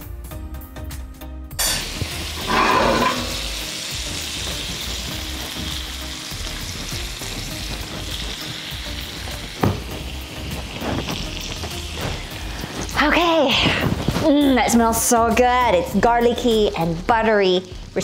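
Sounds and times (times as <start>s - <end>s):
clams sizzling in a pan: 1.6s - 18.0s.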